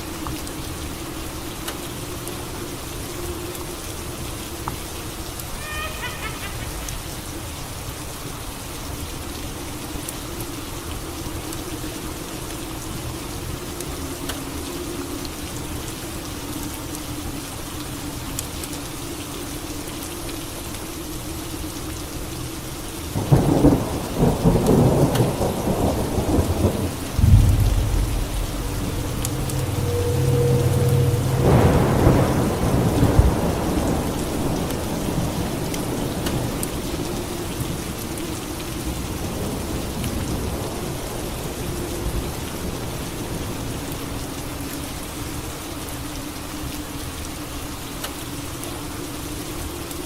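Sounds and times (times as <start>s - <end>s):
steady rain: 0.0s - 50.0s
thunder rolling: 23.2s - 36.5s.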